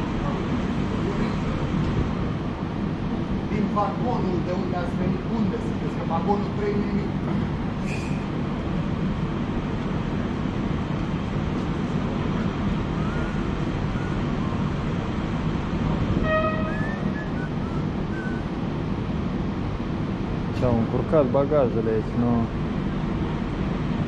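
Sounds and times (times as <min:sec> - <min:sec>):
train idling rumble: 0:00.0 - 0:24.0
train horn toot: 0:16.0 - 0:17.3.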